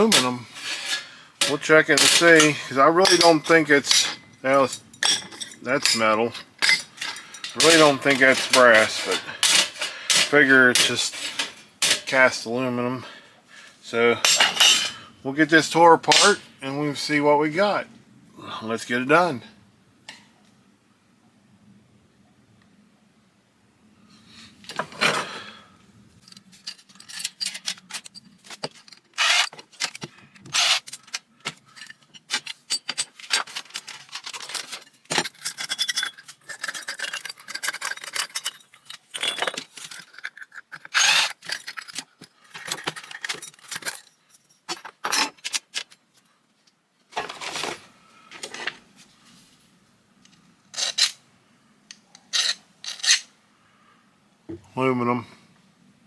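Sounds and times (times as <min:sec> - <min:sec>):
scraping and rasping: 0:00.0 - 0:04.7, 0:05.8 - 0:12.4, 0:16.0 - 0:16.6, 0:26.3 - 0:42.1
metal parts and tools clinking: 0:00.0 - 0:12.4, 0:14.2 - 0:16.7, 0:26.2 - 0:46.0, 0:47.1 - 0:48.8, 0:50.2 - 0:51.2, 0:51.9 - 0:53.3.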